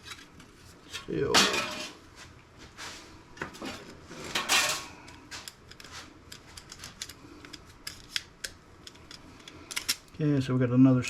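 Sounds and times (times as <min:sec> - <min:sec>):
parts rattling: 0:00.9 - 0:02.0, 0:03.6 - 0:10.1
small parts clicking and clattering: 0:04.3 - 0:10.1.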